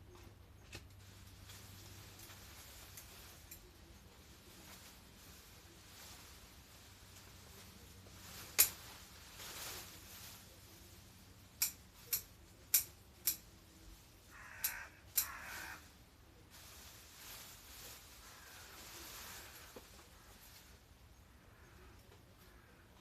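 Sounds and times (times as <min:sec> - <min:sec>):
pruning shears snipping: 0:08.4 - 0:09.1, 0:11.5 - 0:13.6, 0:14.6 - 0:15.4.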